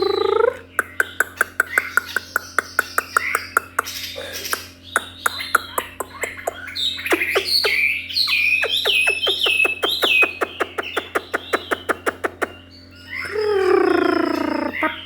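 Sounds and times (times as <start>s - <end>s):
bird whistling downward notes: 6.4s - 12.2s.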